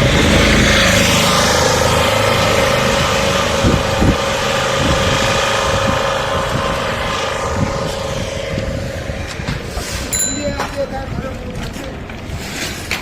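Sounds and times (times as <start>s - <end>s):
vehicle engine drone: 0.0s - 10.1s
wind buffeting microphone: 0.0s - 13.0s.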